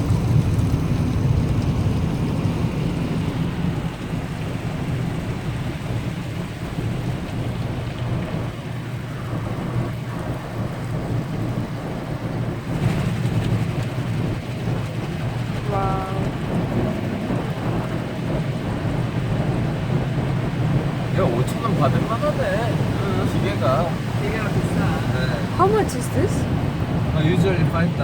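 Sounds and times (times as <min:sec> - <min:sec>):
car wash low rumble: 0:00.0 - 0:28.0
water spray drumming on car body: 0:11.1 - 0:28.0.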